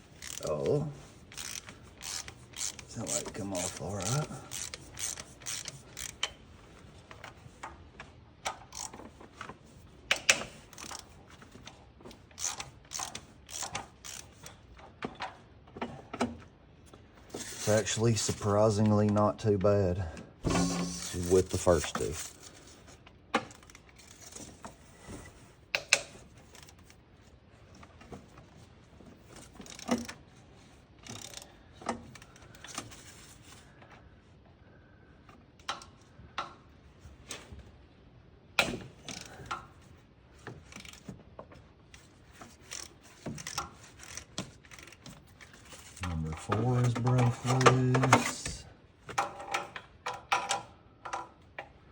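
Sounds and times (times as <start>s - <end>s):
ratchet clicking: 0.1s - 0.5s, 1.3s - 6.4s, 8.7s - 9.0s, 10.1s - 11.1s, 12.4s - 14.6s, 29.6s - 30.1s, 31.0s - 31.5s, 40.7s - 41.1s, 42.0s - 45.1s.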